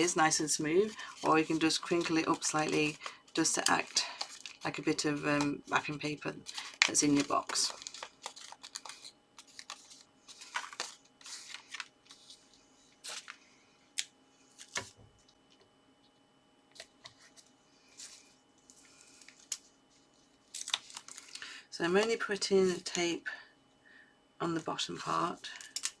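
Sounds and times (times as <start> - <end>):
paper rustling: 0.0 - 13.4, 14.5 - 15.4, 16.7 - 21.4.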